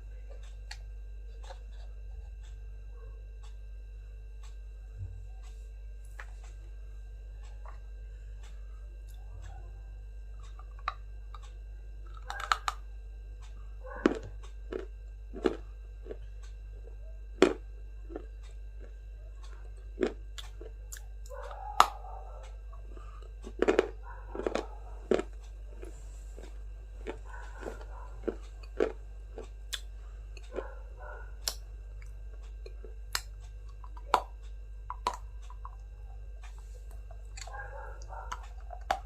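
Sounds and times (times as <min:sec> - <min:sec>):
steady low hum: 0:00.0 - 0:39.0
person chewing crunchy food: 0:00.2 - 0:02.5, 0:12.1 - 0:12.8, 0:13.8 - 0:39.0.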